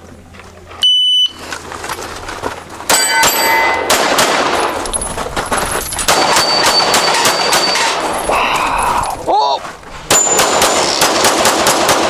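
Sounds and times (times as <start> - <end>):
rapid pistol shots: 2.9 - 4.8, 6.0 - 8.2, 10.1 - 12.0
steel targets ringing: 2.9 - 8.4, 10.1 - 11.1.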